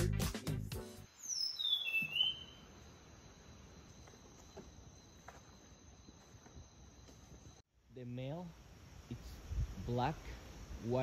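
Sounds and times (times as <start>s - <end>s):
bird whistling falling notes: 1.2s - 2.7s.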